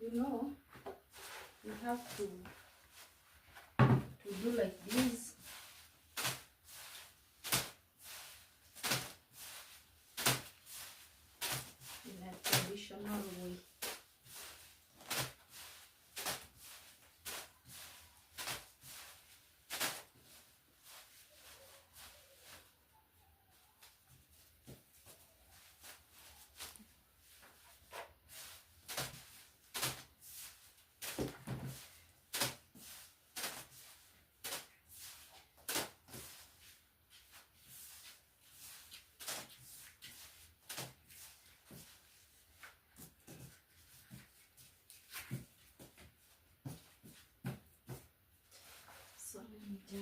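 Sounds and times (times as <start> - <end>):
kitchen knocks and clatters: 3.8 - 4.2.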